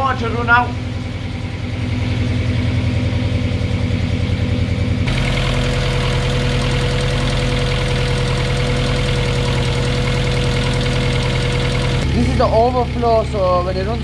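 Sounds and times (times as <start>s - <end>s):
car engine idling: 0.0s - 14.0s
thin steady whine: 0.0s - 14.0s.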